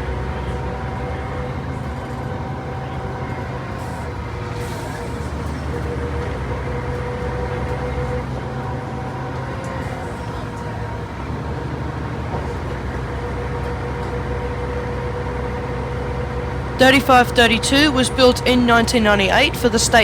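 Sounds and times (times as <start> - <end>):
diesel bus engine running: 0.0 - 20.0.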